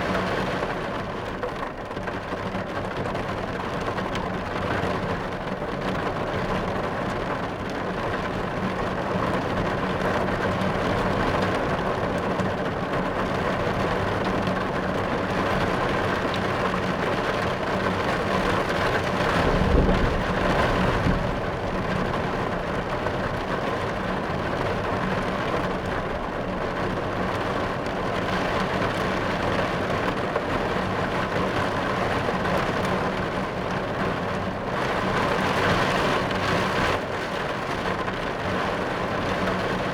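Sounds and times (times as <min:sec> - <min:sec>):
heavy rain on car roof: 0:00.0 - 0:39.9
low thunder roll: 0:19.2 - 0:23.1.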